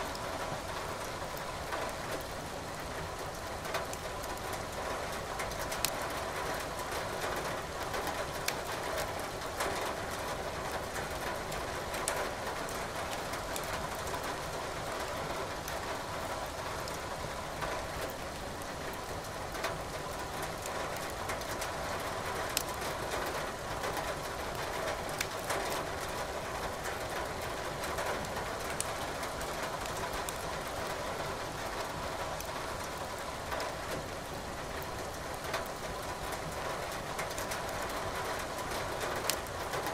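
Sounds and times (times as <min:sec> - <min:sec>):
steady rain: 0:00.0 - 0:39.9
wood fire crackling: 0:22.6 - 0:22.8, 0:25.2 - 0:25.5, 0:39.2 - 0:39.5.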